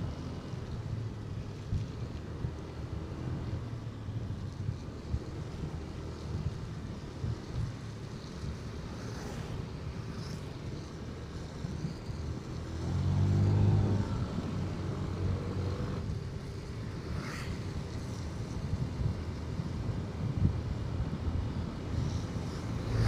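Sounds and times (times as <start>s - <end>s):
wind buffeting microphone: 13.6s - 23.0s.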